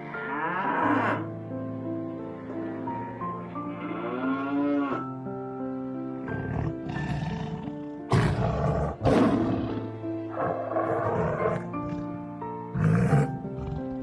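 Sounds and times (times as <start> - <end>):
background music with held notes: 0.0 - 14.0.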